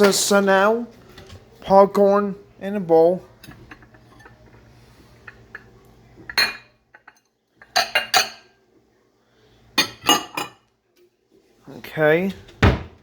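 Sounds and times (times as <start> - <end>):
dish clinking and knocking: 5.2 - 8.5, 9.8 - 10.6.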